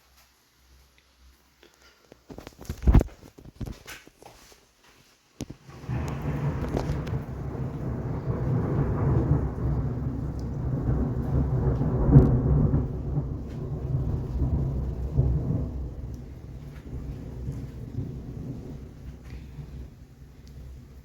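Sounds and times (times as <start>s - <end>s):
thunder rumbling: 5.6s - 21.0s.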